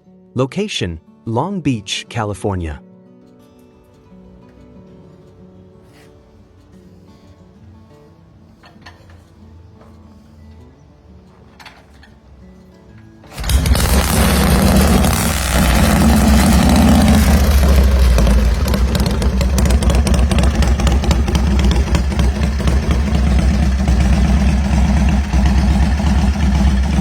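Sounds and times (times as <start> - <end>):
motorcycle engine running: 13.3 - 27.0.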